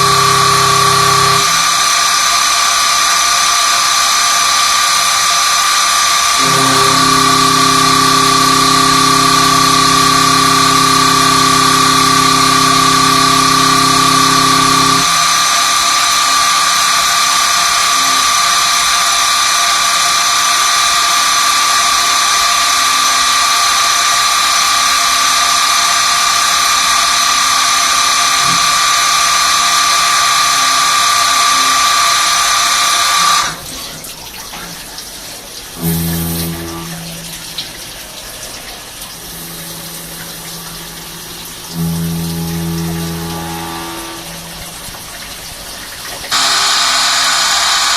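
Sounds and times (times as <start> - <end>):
lathe high-pitched whine: 0.0 - 33.6, 39.3 - 45.0, 46.3 - 47.9
coolant rushing: 0.0 - 47.9.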